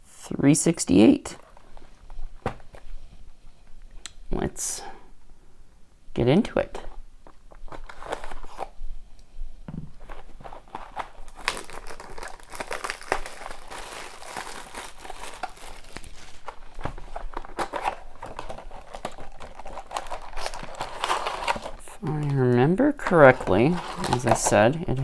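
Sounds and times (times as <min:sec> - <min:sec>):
plastic wrapping crinkling: 0:06.9 - 0:08.9, 0:09.7 - 0:25.0.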